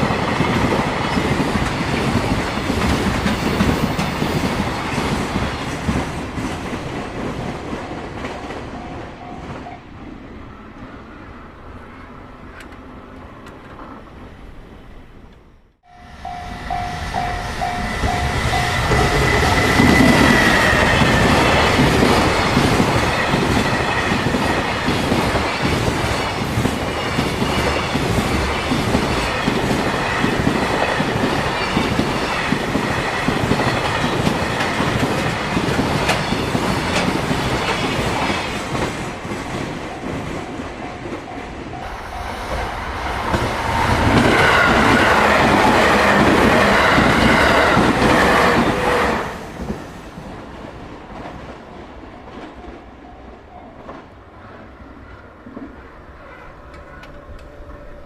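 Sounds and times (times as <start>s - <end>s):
crossing warning bell ringing: 7.8s - 10.0s, 15.8s - 24.8s, 39.0s - 48.0s
train wheels clacking over rail joints: 18.1s - 40.2s.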